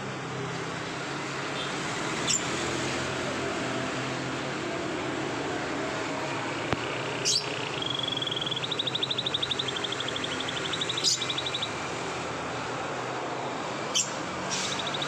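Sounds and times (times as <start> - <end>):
canary trilling: 2.2 - 2.5, 7.2 - 11.8, 13.9 - 15.0
short sharp bird chirp: 14.0 - 15.0.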